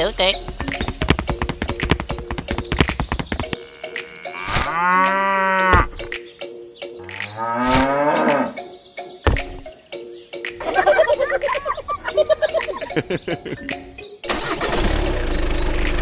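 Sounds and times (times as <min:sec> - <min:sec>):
light background music: 0:00.0 - 0:16.0
cow mooing: 0:03.6 - 0:06.0, 0:07.1 - 0:08.6.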